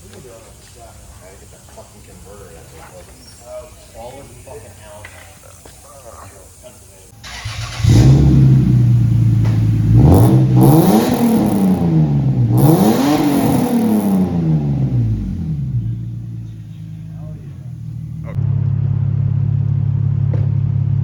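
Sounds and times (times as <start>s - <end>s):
car engine idling and revving: 7.2s - 21.0s.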